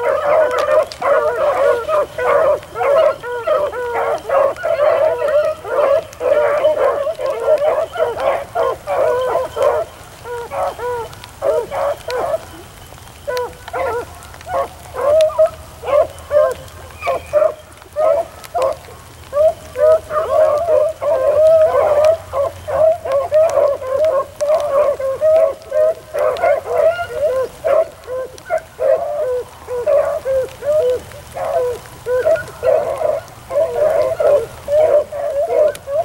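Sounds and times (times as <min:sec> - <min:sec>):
beagles baying: 0:00.0 - 0:36.0.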